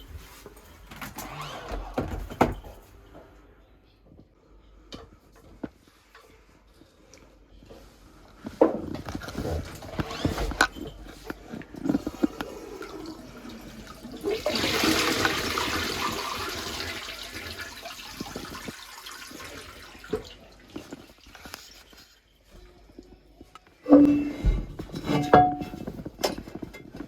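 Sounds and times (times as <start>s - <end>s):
toilet flushing: 11.7s - 22.0s
small knocks and clatter: 22.9s - 27.0s.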